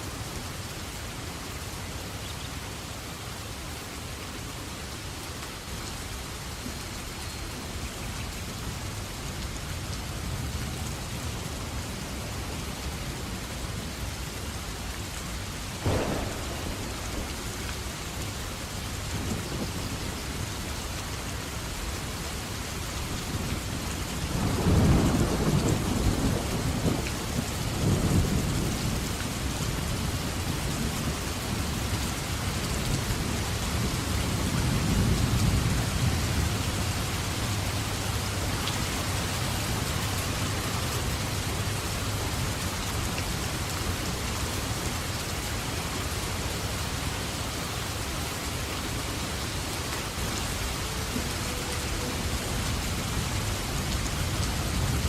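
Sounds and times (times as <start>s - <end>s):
steady rain: 0.0s - 55.0s
rolling thunder: 15.8s - 20.5s.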